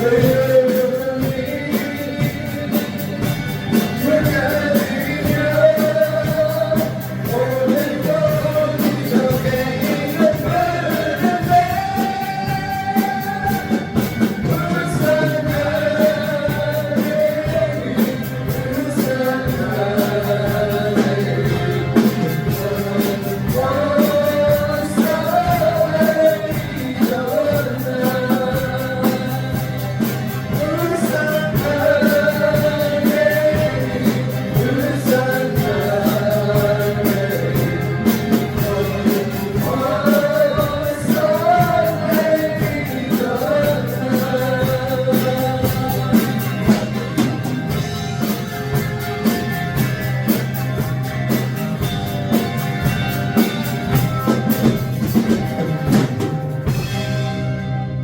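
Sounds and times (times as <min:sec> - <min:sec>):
person singing: 0:00.0 - 0:49.4
drum kit: 0:00.0 - 0:58.0
rock band playing: 0:00.0 - 0:58.0.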